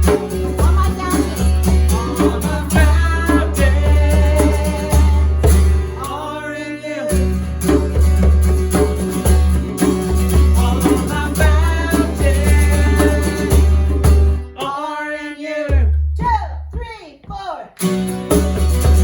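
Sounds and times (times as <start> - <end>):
band with heavy bass: 0.0 - 6.4, 7.1 - 14.7, 17.9 - 19.0
guitar: 0.0 - 16.8, 17.7 - 19.0
person singing: 0.1 - 7.4, 10.5 - 17.7.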